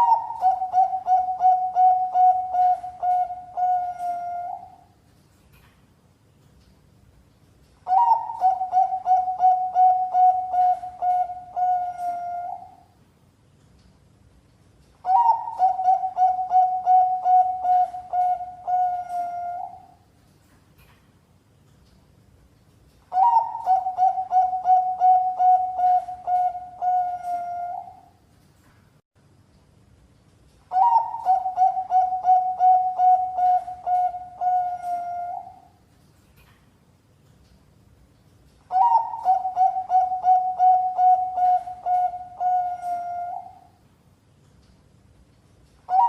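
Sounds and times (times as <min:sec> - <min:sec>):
dove cooing: 0:00.0 - 0:04.9, 0:07.9 - 0:12.8, 0:15.0 - 0:20.0, 0:23.1 - 0:28.0, 0:30.7 - 0:35.7, 0:38.7 - 0:43.7.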